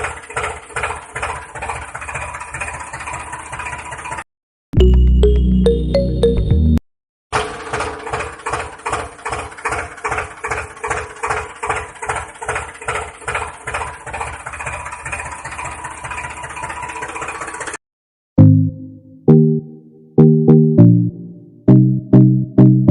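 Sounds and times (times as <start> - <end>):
tractor engine idling: 0.0 - 4.2, 7.4 - 17.8.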